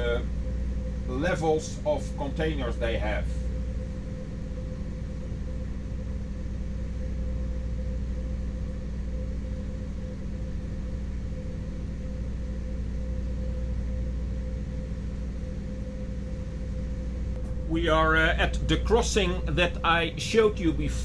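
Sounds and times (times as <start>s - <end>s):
diesel boat engine running: 17.2s - 21.0s.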